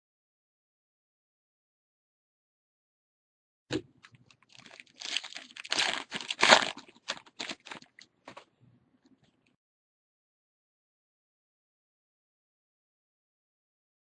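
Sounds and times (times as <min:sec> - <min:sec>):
foil wrapper tearing and crinkling: 0:04.5 - 0:08.4.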